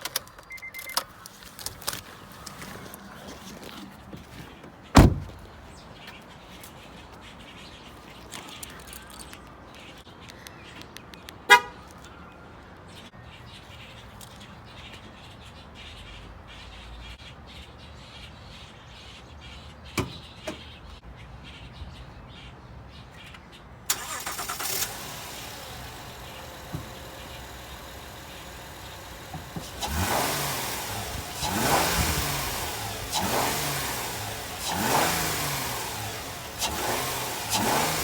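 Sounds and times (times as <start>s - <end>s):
car door thudding shut: 4.1s - 5.5s.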